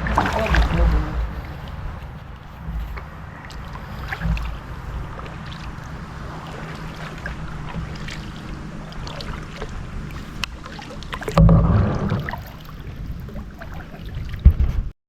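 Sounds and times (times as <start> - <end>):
loud low thump: 0.0 - 3.2, 11.4 - 12.5
paddle knocking against hull: 0.0 - 14.9
water swishing off paddle: 0.0 - 14.9.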